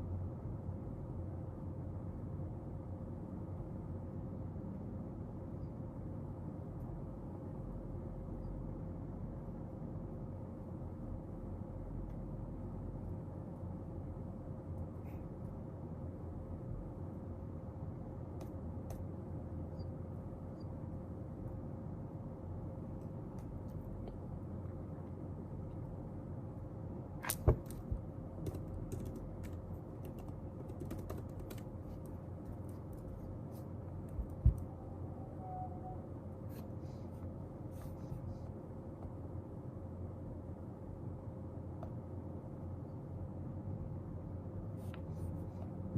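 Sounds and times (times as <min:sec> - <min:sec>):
low background hum: 0:00.0 - 0:45.9
light clicks and taps at a desk: 0:18.3 - 0:19.2, 0:27.2 - 0:33.3.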